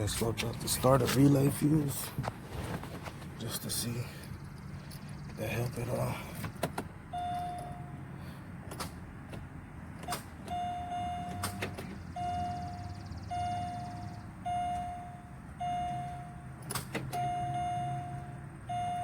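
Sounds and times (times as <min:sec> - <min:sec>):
car warning chime beeping: 0:07.1 - 0:08.0, 0:10.5 - 0:19.0.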